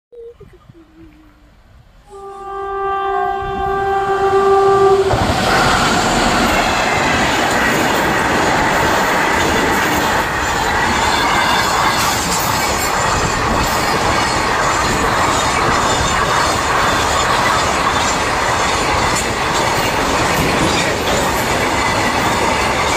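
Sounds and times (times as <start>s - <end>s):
locomotive horn blast: 2.0s - 6.2s.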